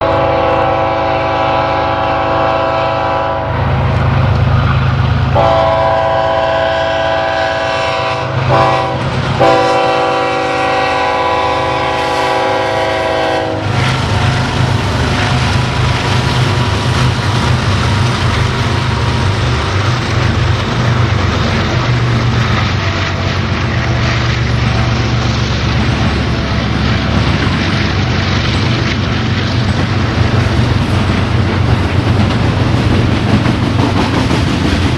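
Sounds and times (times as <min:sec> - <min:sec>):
locomotive air horn blasts: 0:00.0 - 0:03.7, 0:05.4 - 0:15.6
locomotive engine: 0:00.0 - 0:34.9
train wheels clacking on rails: 0:03.6 - 0:34.9.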